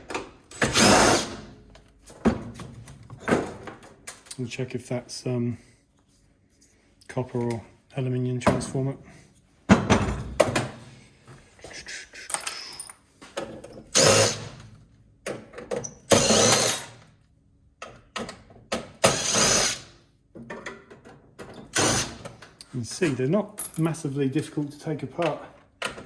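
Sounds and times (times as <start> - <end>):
cordless drill undoing screws: 0.5 - 1.4, 13.9 - 14.6, 16.1 - 17.0, 19.0 - 19.9, 21.6 - 22.4
metal and plastic parts clattering: 12.3 - 13.8.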